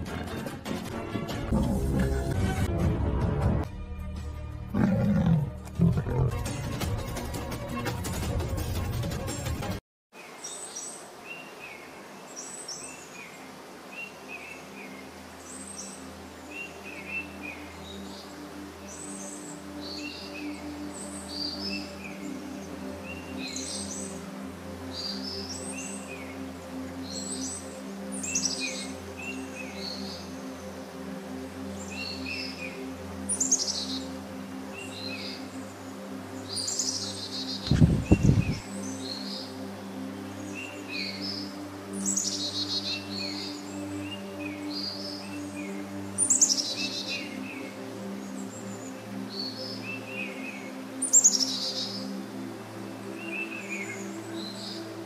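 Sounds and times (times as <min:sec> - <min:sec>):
birds chirping: 0:04.8 - 0:06.8, 0:10.2 - 0:55.0
birds chirping and whistling: 0:36.5 - 0:39.5, 0:40.4 - 0:47.7.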